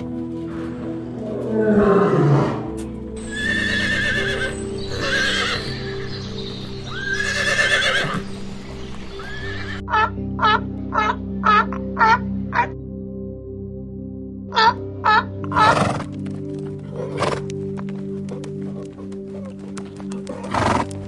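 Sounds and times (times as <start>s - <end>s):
music with held notes: 0.0s - 21.0s
horse whinnying: 0.5s - 9.8s.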